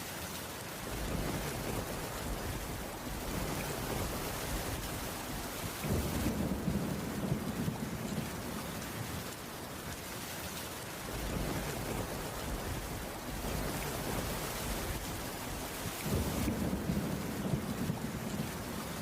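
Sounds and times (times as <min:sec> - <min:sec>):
heavy rain on wooden roof: 0:00.0 - 0:19.0
low rolling thunder: 0:00.9 - 0:08.6, 0:11.1 - 0:19.0.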